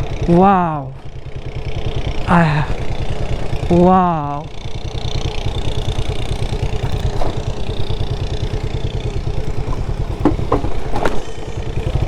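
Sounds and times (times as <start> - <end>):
motorcycle engine running: 0.0 - 12.0
sharp knocks: 9.5 - 11.4.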